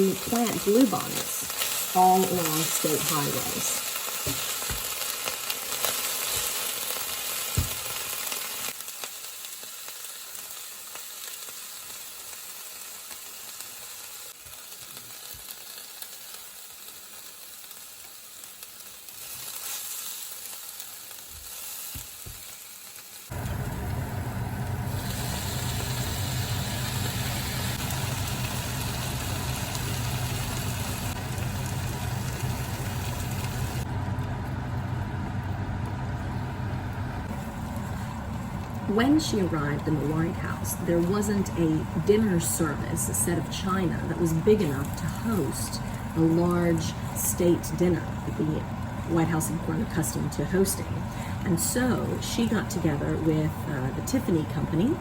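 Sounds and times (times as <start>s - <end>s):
food sizzling in a pan: 0.0s - 33.9s
low hum with rushing noise: 23.3s - 55.0s.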